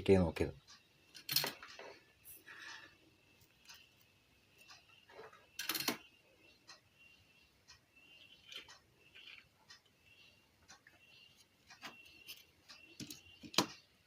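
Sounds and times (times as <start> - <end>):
small clicks and taps of tools: 10.6 - 13.9.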